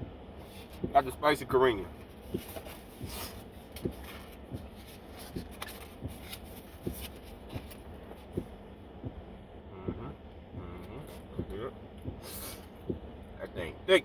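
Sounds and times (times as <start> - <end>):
rubbing and rustling: 1.9 - 8.5.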